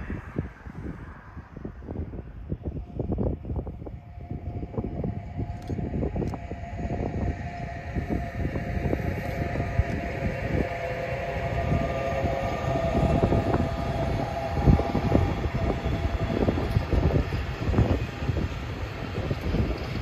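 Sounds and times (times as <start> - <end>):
steady whine: 0.0 - 20.0
train rumbling past: 0.0 - 20.0
wheels clacking on track: 13.7 - 20.0.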